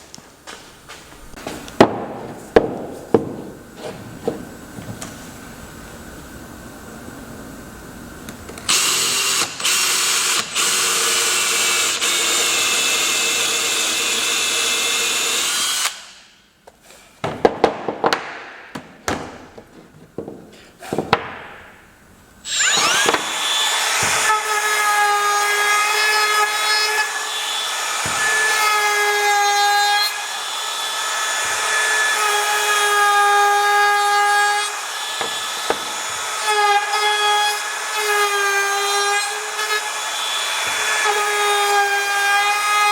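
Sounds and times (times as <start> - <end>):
power tool cutting wood: 8.6 - 16.2, 22.4 - 42.9.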